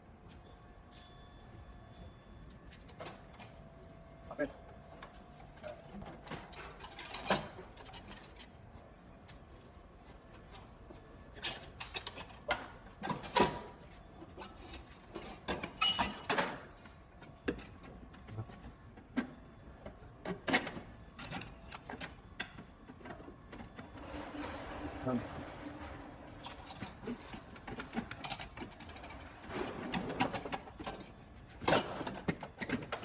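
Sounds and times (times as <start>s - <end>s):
tools and parts clicking and knocking: 29.8s - 33.0s.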